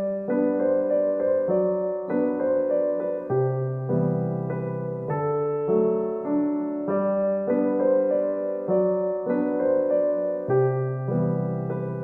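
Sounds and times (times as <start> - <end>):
soft slow piano music: 0.0 - 12.0.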